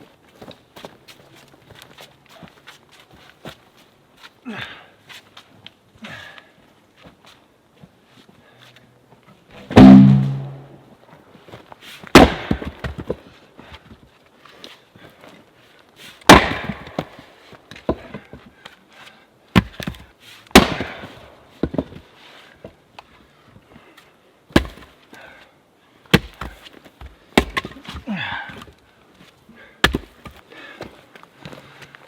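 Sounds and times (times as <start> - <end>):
sharp wooden knocks: 9.8 - 10.6.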